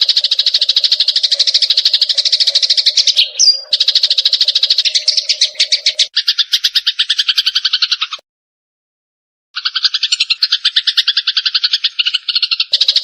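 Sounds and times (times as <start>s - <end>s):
sparrows chattering: 0.0s - 8.2s, 9.6s - 13.0s.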